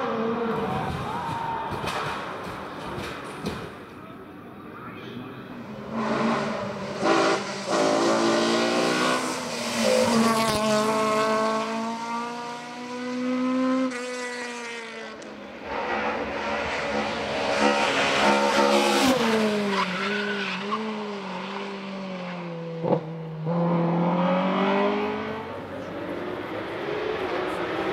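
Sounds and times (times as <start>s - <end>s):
race car engine revving: 5.6s - 27.9s.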